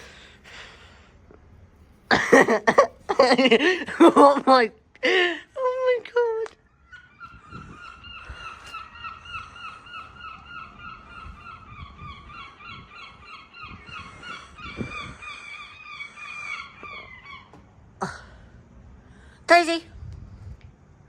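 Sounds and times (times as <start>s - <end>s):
geese honking: 7.0s - 17.6s.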